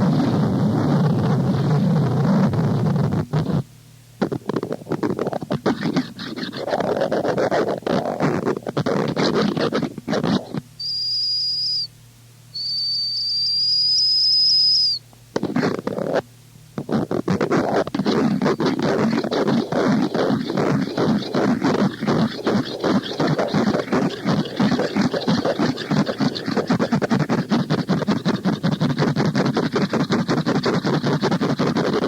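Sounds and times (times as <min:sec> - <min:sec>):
crackling distorted noise bursts: 0:00.0 - 0:11.9, 0:12.6 - 0:32.0
low hum: 0:10.5 - 0:26.8
piercing high tone: 0:10.8 - 0:11.9, 0:12.5 - 0:15.0.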